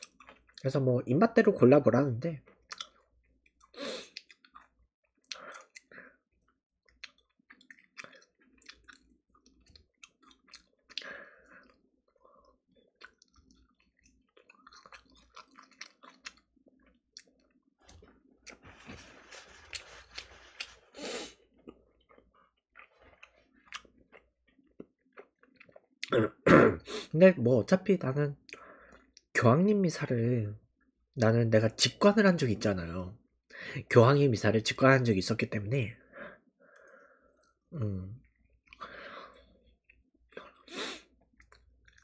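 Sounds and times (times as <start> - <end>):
chewing fried chicken: 0.0 - 0.7, 2.4 - 26.2
rustling: 17.8 - 21.0.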